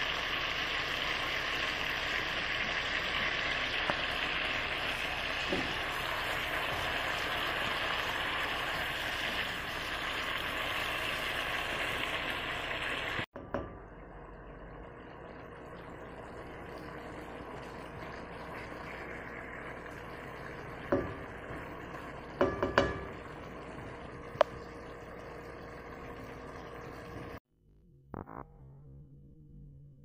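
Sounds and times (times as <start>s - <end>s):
chicken sizzling in oil: 0.0s - 27.4s
spatula knocking on pan: 5.4s - 6.0s, 20.9s - 21.7s, 22.4s - 23.3s
quiet simmer: 13.4s - 27.4s.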